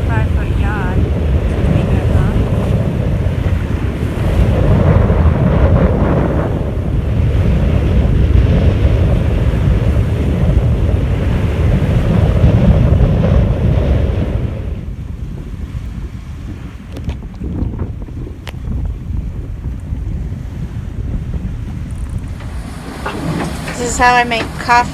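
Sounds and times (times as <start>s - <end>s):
waves rushing: 0.0s - 14.6s, 20.3s - 24.9s
wind buffeting microphone: 0.0s - 24.9s.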